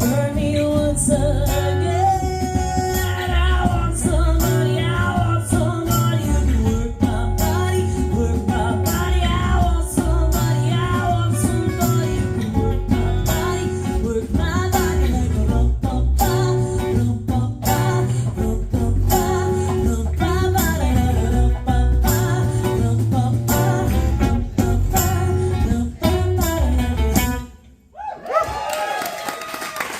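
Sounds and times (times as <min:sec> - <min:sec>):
guitar: 0:00.0 - 0:27.9
bass: 0:00.0 - 0:28.7
drums: 0:00.0 - 0:28.7.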